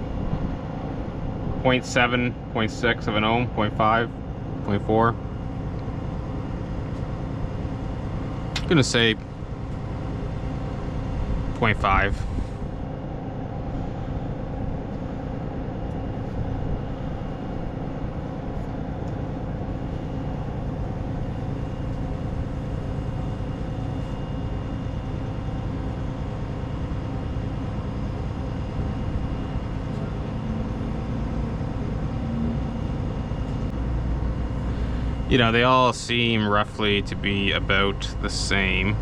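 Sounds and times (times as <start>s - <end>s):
machinery rumbling and humming: 0.0s - 39.0s.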